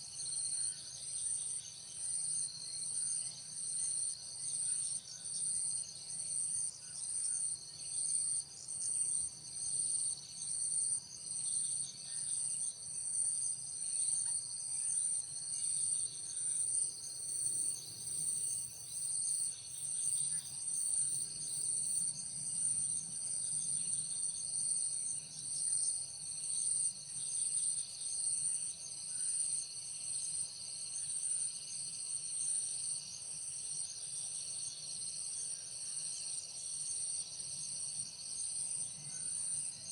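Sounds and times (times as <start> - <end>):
insects chorus: 8.8 - 39.9.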